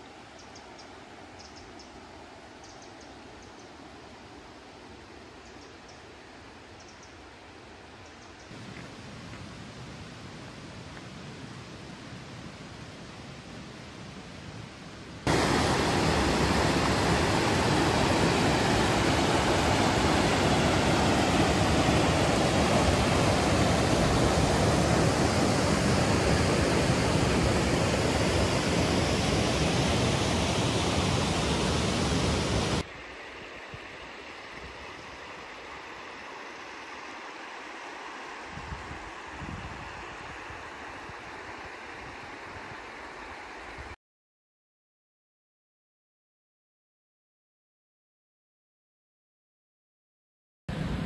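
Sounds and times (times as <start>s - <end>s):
waterfall rushing: 15.3s - 32.8s.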